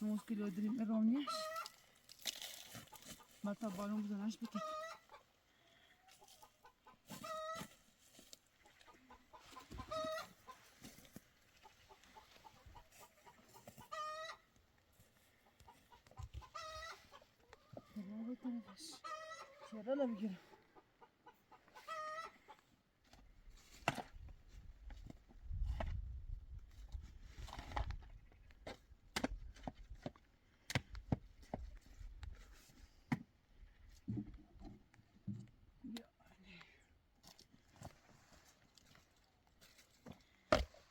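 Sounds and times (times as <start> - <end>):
chicken drawn-out calls: 1.2 - 1.9, 4.4 - 7.8, 8.5 - 10.9, 11.5 - 14.6, 15.4 - 22.6
chicken clucking: 4.4 - 5.4, 6.0 - 7.7, 8.6 - 10.6, 11.5 - 14.5, 15.4 - 22.6.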